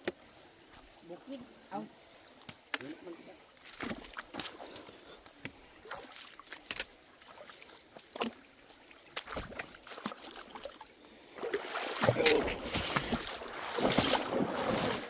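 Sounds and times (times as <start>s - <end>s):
footsteps on muddy trail: 3.6s - 10.9s, 11.6s - 15.0s.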